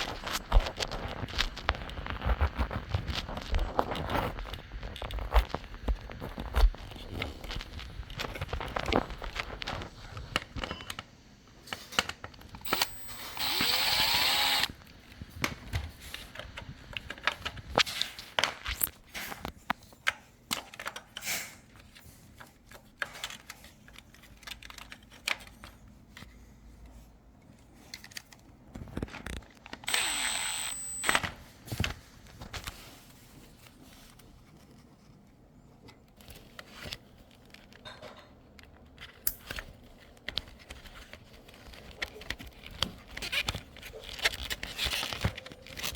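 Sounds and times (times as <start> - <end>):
cordless drill whirring: 12.6 - 14.8, 29.8 - 31.4
clicks and knocks of parts handled: 15.1 - 32.8.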